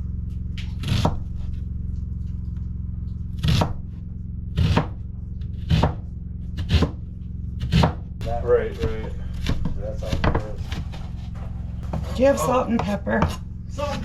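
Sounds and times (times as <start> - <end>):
steady low hum: 0.0 - 14.0
knife chopping onion on board: 0.8 - 1.2, 3.4 - 3.8, 4.6 - 5.0, 5.6 - 6.0, 6.6 - 7.0, 7.6 - 8.0, 8.8 - 11.0, 11.8 - 14.0.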